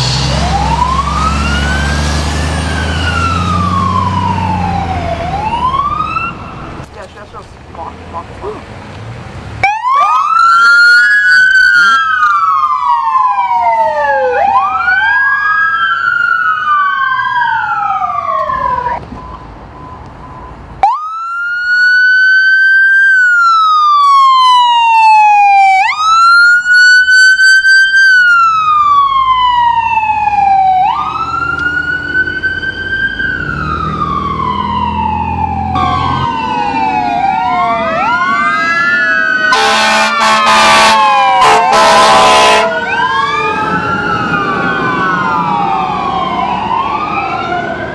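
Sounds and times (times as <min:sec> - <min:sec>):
emergency sirens wailing: 0:00.0 - 0:47.9
short horn blasts: 0:39.6 - 0:42.8.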